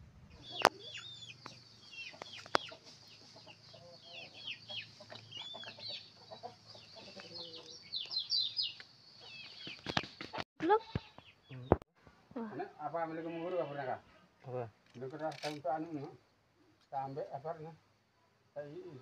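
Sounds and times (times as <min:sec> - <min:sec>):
birds chirping: 0:00.3 - 0:11.8.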